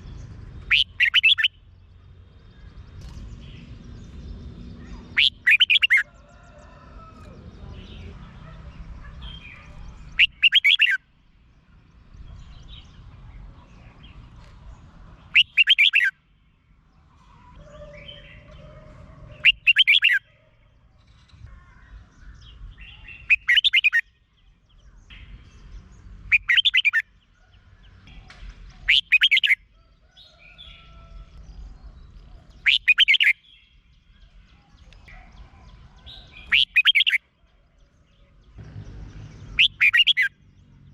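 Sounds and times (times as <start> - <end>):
soft bird chirps: 0.0 - 40.9
bulbul warbled phrases: 0.6 - 1.5, 4.8 - 6.0, 7.3 - 11.0, 19.2 - 20.4.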